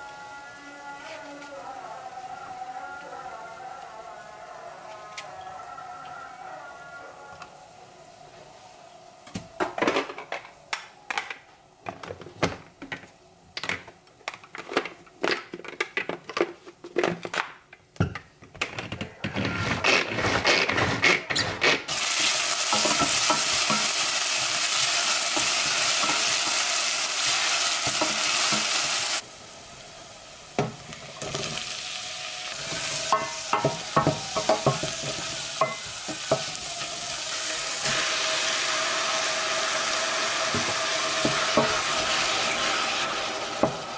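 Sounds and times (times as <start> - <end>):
food sizzling in hot oil: 21.9 - 43.9.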